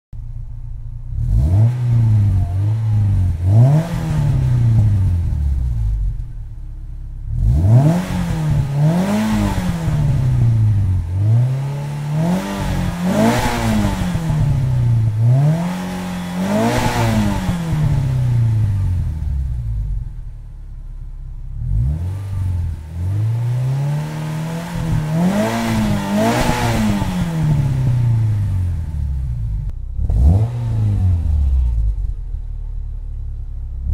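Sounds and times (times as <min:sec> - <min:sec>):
car engine revving: 0:00.4 - 0:33.9.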